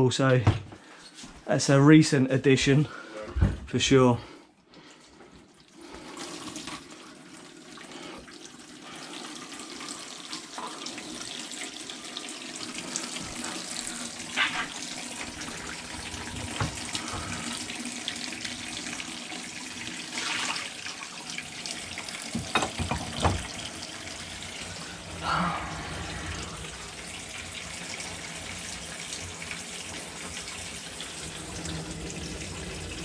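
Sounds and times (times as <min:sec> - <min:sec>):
water running from a tap: 0:05.5 - 0:33.0.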